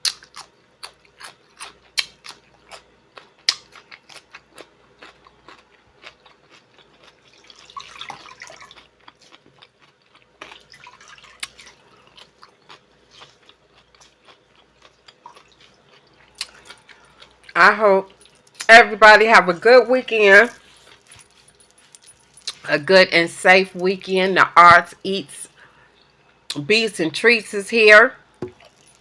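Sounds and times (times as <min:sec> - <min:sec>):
crunchy chewing of cucumber: 0:00.0 - 0:18.7.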